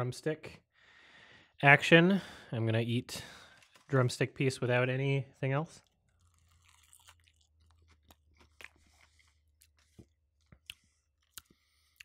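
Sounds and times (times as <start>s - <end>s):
faint chewing of fried chicken: 3.3s - 4.0s, 5.7s - 12.0s.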